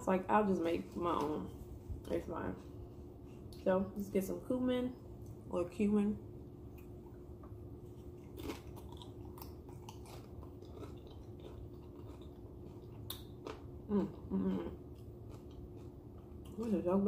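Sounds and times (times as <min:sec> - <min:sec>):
chewing food: 0:06.7 - 0:16.8.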